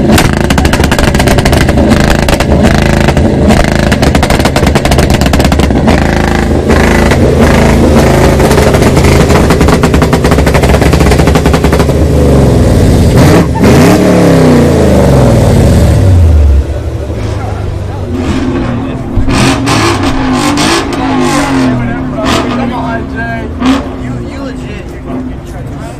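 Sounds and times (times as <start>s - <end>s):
exhaust crackles and pops: 0.0s - 14.0s
car engine revving: 0.0s - 25.9s.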